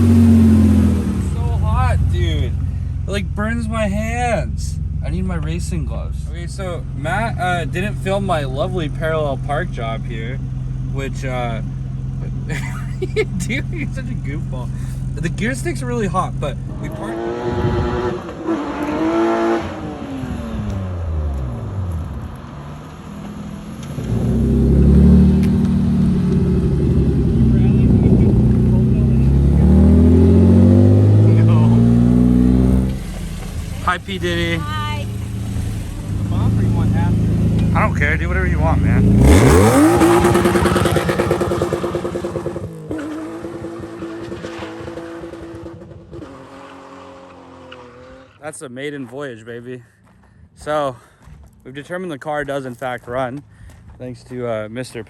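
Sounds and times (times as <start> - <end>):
loud low engine running: 0.0 - 12.6, 24.0 - 44.3
car engine revving: 0.0 - 48.6.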